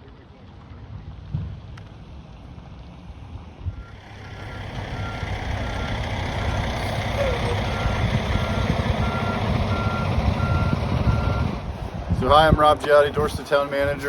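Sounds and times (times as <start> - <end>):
diesel engine rumble: 3.7 - 14.0
backup alarm beeping: 3.8 - 11.6.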